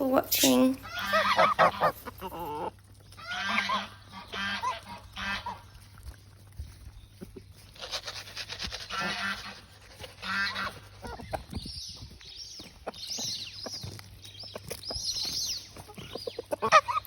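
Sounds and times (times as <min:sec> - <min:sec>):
geese honking: 0:00.8 - 0:05.8, 0:07.8 - 0:11.3.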